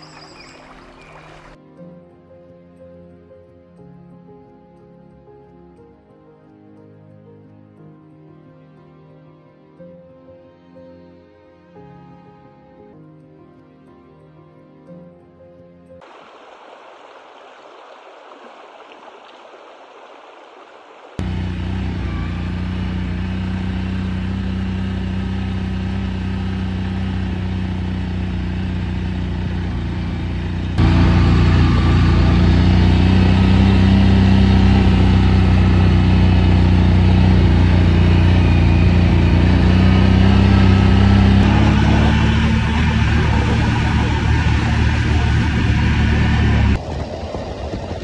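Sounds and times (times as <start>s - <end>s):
motorcycle engine running: 21.2s - 47.9s.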